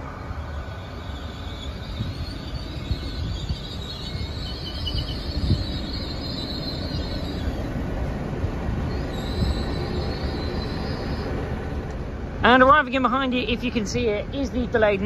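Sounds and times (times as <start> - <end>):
high-pitched wheel squeal: 0.0 - 7.9, 8.8 - 11.8
train engine and wheels rumbling: 0.0 - 15.0.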